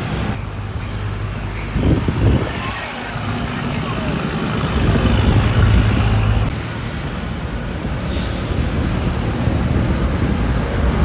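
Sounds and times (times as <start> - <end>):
heavy trucks passing: 0.0 - 11.0
short hiss: 8.1 - 8.6.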